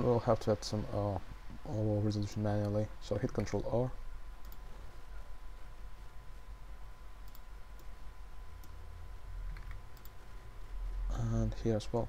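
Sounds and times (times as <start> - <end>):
low electrical hum: 0.0 - 12.0
computer mouse and keyboard clicks: 9.5 - 10.2.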